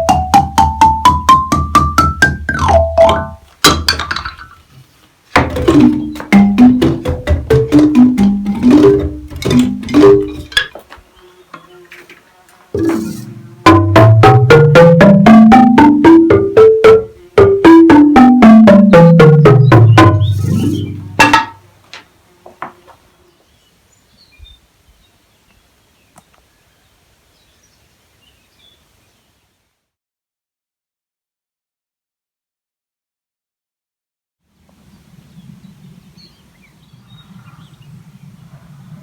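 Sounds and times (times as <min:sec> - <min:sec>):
xylophone-like instrument runs: 0:00.0 - 0:03.4, 0:05.6 - 0:10.5, 0:12.8 - 0:21.6.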